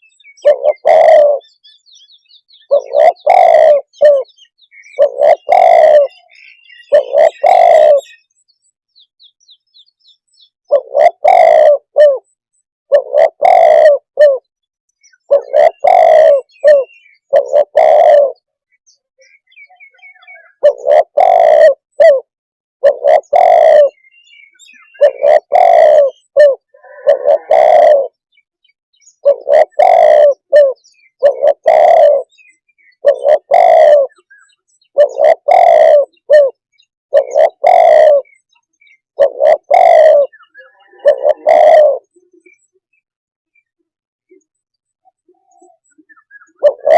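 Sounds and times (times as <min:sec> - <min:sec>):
dove cooing: 0:00.0 - 0:01.7, 0:02.6 - 0:08.3, 0:10.7 - 0:14.5, 0:15.1 - 0:18.5, 0:19.8 - 0:28.2, 0:29.1 - 0:42.8, 0:44.3 - 0:46.9.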